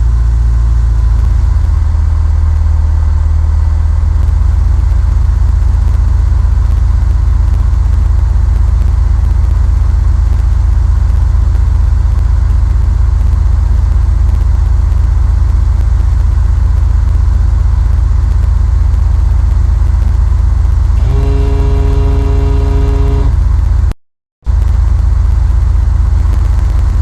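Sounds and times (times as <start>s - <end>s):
steady tone with overtones: 20.9s - 23.9s
plane engine and propeller drone: 21.0s - 23.6s.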